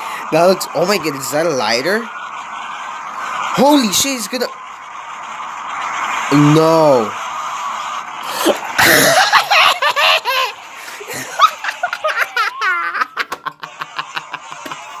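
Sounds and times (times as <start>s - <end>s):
man laughing hard: 8.4s - 15.0s.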